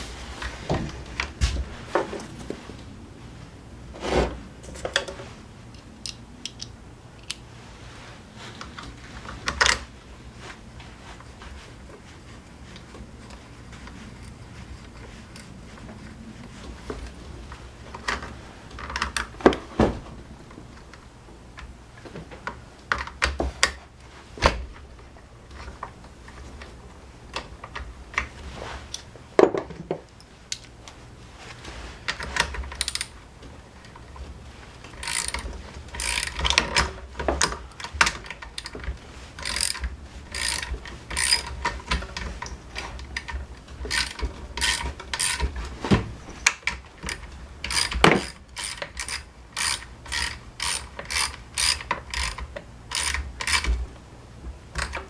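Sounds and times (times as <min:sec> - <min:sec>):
quick ratcheting clicks: 0:35.0 - 0:36.6, 0:39.4 - 0:41.5, 0:43.9 - 0:45.5, 0:47.1 - 0:53.7
tools and metal parts knocking: 0:35.0 - 0:42.3, 0:43.2 - 0:45.6, 0:46.7 - 0:53.8.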